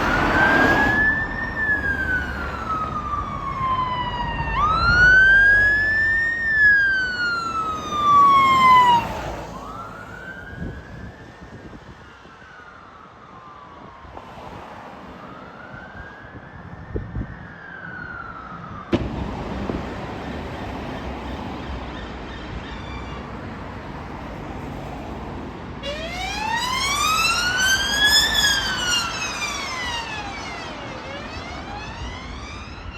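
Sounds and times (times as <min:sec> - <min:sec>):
fire engine sirens wailing: 0:00.0 - 0:23.2, 0:24.3 - 0:32.9.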